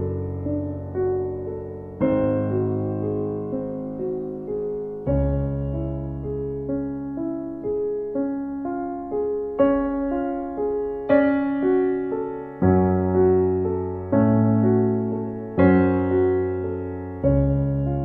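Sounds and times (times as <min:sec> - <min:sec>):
gentle solo piano music: 0:00.0 - 0:18.0.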